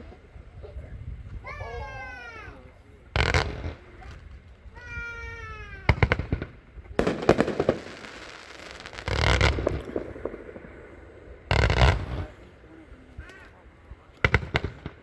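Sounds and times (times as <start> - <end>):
firework cracks and bursts: 3.2 - 4.5, 5.1 - 15.0
firework whistling: 5.9 - 15.0.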